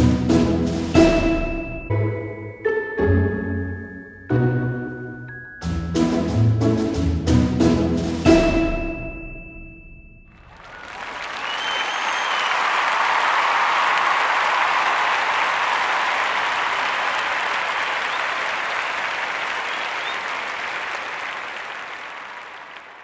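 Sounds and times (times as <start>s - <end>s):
crowd applauding: 10.4s - 23.0s
short whistles: 10.6s - 12.8s, 19.5s - 20.5s.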